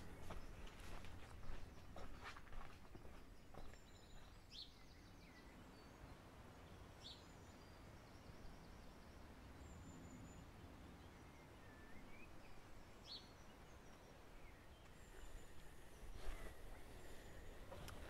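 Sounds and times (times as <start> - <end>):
low steady background hiss: 3.3 - 18.0
faint bird chirps and whistles: 11.2 - 17.5.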